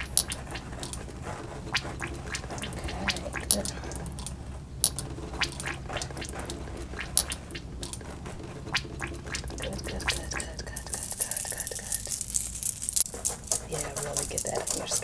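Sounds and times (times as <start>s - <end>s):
fingers rubbing hair crackling: 0.0s - 15.0s
steady low hum: 0.0s - 15.0s.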